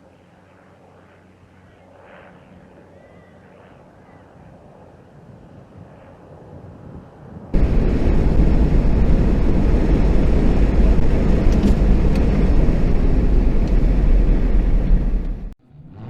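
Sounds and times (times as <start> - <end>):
vehicle driving rumble: 7.6 - 16.0.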